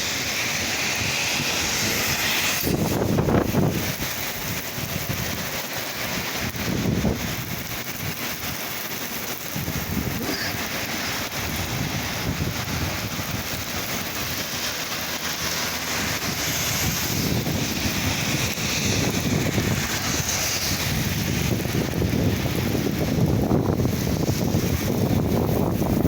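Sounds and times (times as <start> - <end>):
heavy rain falling: 0.0 - 26.0
wind gusting on microphone: 0.0 - 26.0.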